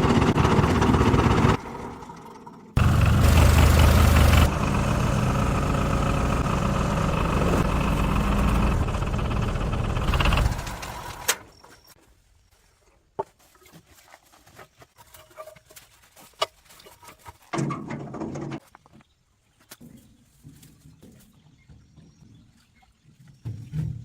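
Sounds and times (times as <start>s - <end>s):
engine running and stopping: 0.0s - 11.5s.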